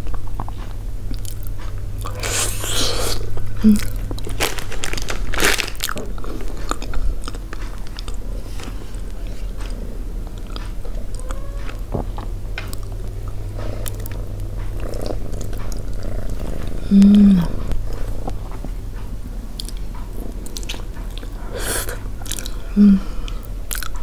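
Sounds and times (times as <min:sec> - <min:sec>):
steady low hum: 0:00.0 - 0:24.0
person biting and chewing: 0:01.1 - 0:03.2, 0:03.8 - 0:13.0, 0:20.4 - 0:22.6.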